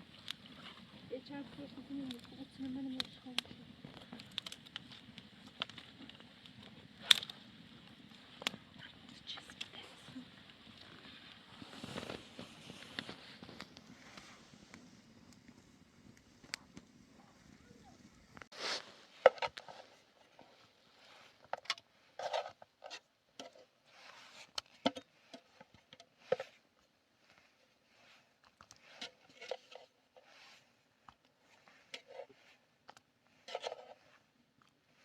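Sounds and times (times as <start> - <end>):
scraping and rubbing: 10.9 - 14.6, 18.4 - 34.4.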